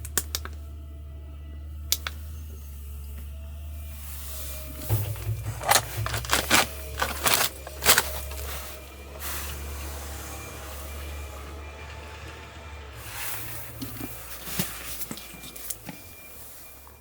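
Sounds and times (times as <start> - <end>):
sharp clicks and knocks: 4.8 - 8.5.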